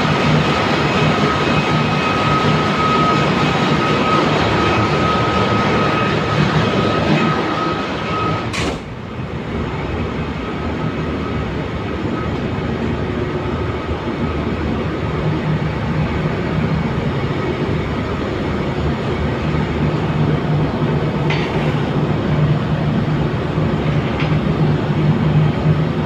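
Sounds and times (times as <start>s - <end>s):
engine-room machinery droning: 0.0s - 26.0s
high steady whine: 0.0s - 26.0s.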